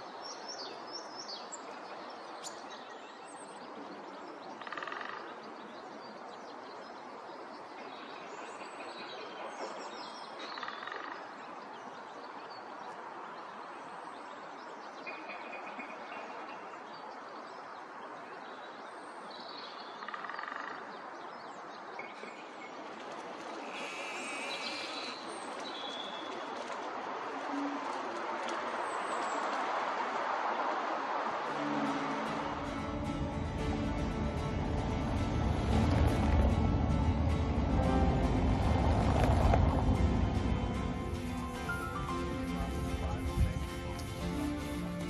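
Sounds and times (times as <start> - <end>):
birds calling and chirping: 19.5 - 26.7.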